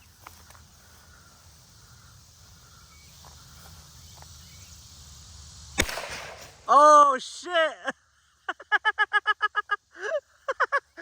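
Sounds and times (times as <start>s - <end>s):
gunshot: 5.8s - 6.6s.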